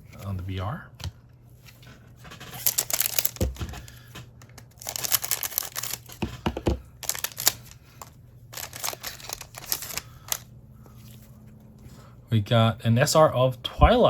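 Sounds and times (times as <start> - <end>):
packaging crinkling: 2.2 - 10.5.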